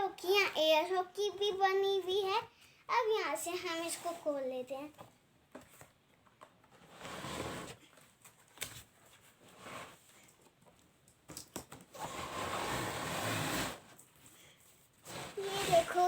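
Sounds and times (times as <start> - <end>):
cardboard box rustling and scraping: 6.7 - 7.8, 15.0 - 16.0
game sliding out of box: 6.8 - 7.8, 12.0 - 13.9, 15.1 - 16.0.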